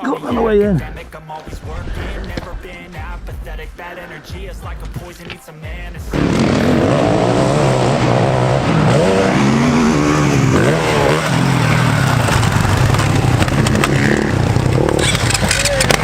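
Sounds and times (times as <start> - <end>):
off-road vehicle engine revving: 6.0 - 16.0.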